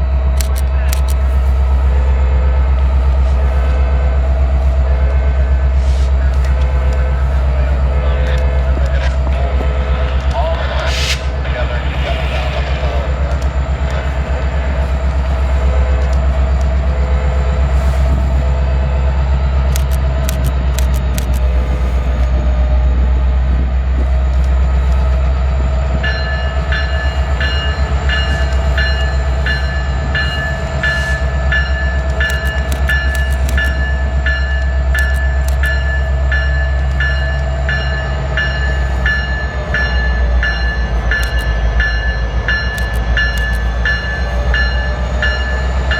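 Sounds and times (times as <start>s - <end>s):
train rumbling past: 0.0s - 45.9s
sharp clicks: 19.7s - 21.5s, 32.0s - 33.8s, 34.6s - 35.9s, 41.2s - 41.6s, 42.6s - 43.8s.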